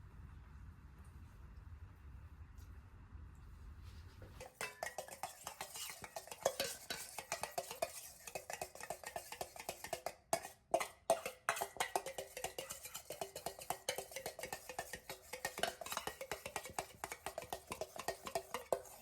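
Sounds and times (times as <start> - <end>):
utensil stirring in a bowl: 4.4 - 19.0.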